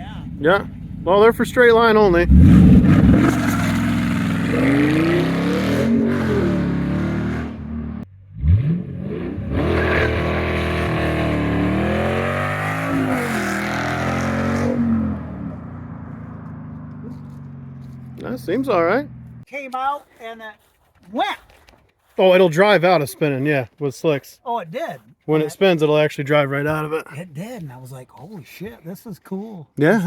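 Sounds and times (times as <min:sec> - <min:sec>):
car engine accelerating hard: 0:00.0 - 0:19.4.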